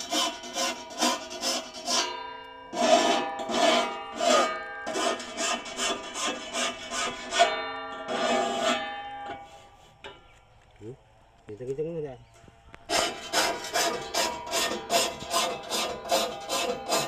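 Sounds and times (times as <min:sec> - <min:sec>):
file rasping on saw teeth: 0:00.0 - 0:02.1, 0:02.8 - 0:07.5, 0:12.9 - 0:17.0
steel blade screeching ring: 0:00.1 - 0:10.0.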